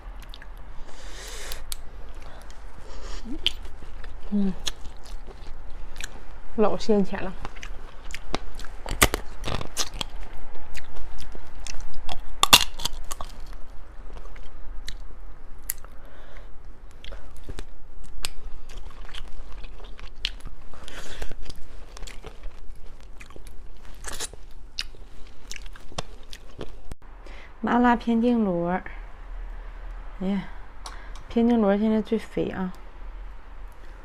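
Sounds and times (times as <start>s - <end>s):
wet chewing with crunches: 0.2s - 0.7s, 1.4s - 6.5s, 7.2s - 27.0s.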